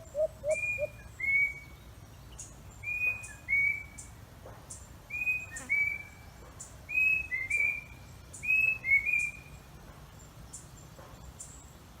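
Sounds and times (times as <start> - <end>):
bird whistled call: 0.0 - 1.7, 2.8 - 4.0, 5.1 - 6.2, 6.9 - 9.5.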